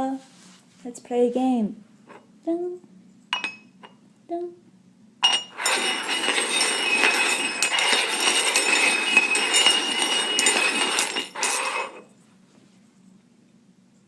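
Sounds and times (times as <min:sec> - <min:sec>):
cups clinking and scraping on table: 0:03.4 - 0:04.0, 0:05.2 - 0:12.1.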